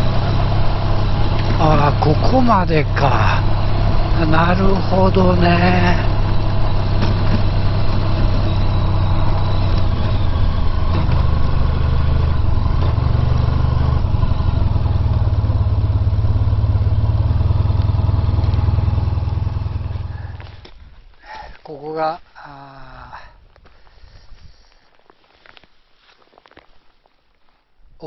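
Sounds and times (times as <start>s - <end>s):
motorcycle engine idling: 0.0s - 20.8s.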